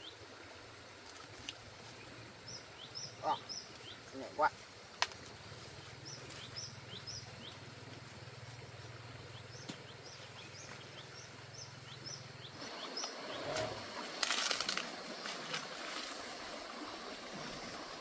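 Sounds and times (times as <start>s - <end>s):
bird chirping: 5.9s - 7.7s, 8.4s - 13.7s.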